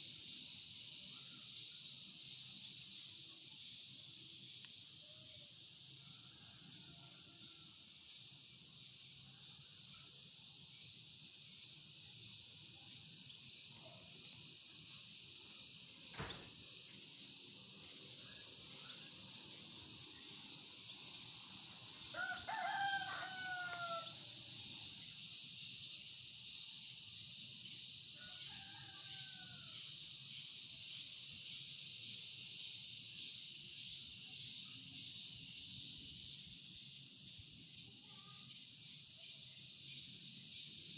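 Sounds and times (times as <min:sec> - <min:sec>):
high insect hiss: 0:00.0 - 0:40.9
rooster crowing: 0:06.0 - 0:07.8, 0:22.1 - 0:24.2, 0:28.2 - 0:29.9.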